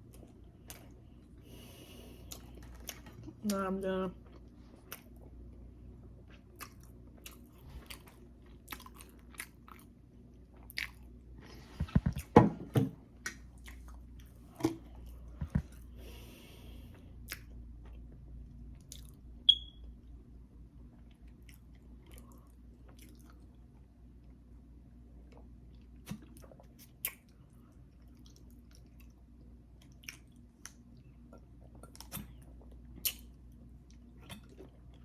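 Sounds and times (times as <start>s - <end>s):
person chewing: 2.2s - 3.5s, 6.2s - 12.3s, 18.7s - 19.2s, 21.0s - 23.6s, 29.8s - 35.0s.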